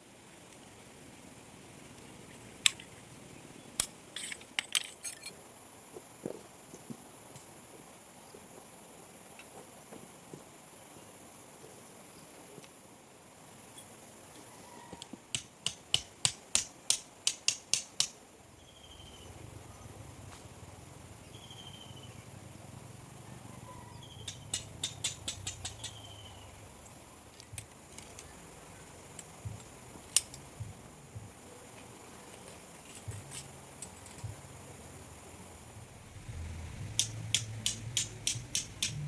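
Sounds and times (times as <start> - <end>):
faint high-pitched hum: 17.9 - 39.0
sharp clicks: 24.2 - 26.1, 37.0 - 39.0.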